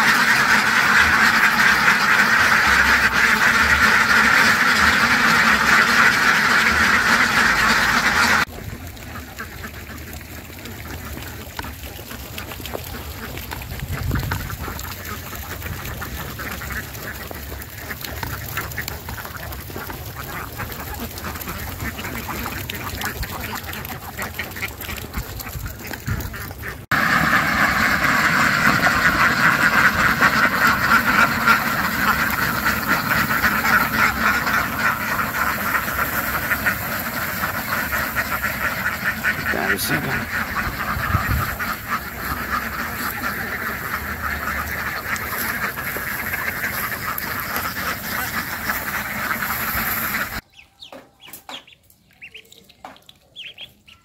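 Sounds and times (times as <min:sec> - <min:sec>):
ducks quacking: 0:00.0 - 0:54.0.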